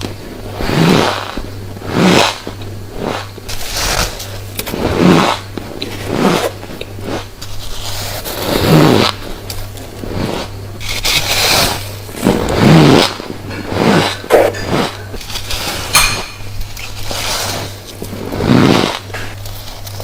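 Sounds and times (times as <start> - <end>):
chewing crunchy frost: 0.0 - 16.0.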